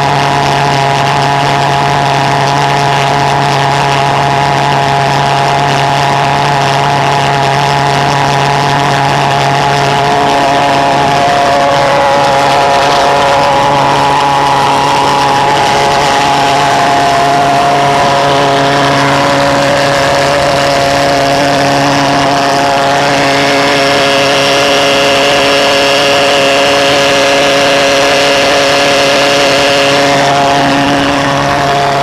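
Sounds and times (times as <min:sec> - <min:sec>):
pulse jet engine running: 0:00.0 - 0:32.0
faint high whine: 0:05.0 - 0:32.0.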